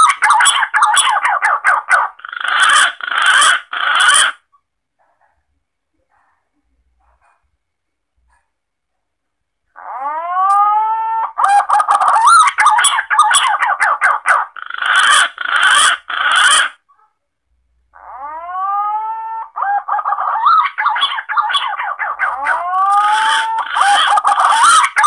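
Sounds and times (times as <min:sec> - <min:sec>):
warbling chattering bird notes: 0:11.5 - 0:16.7, 0:19.7 - 0:25.0.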